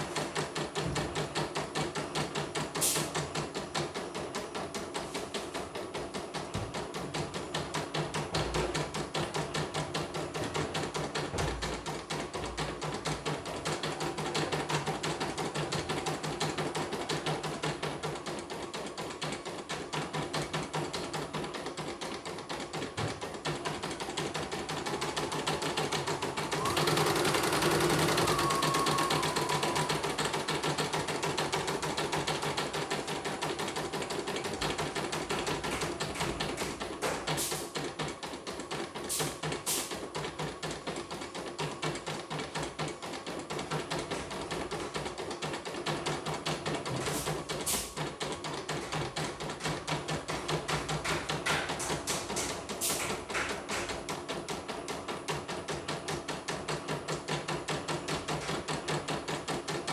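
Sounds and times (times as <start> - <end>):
machine whir with high whine: 24.6 - 35.4.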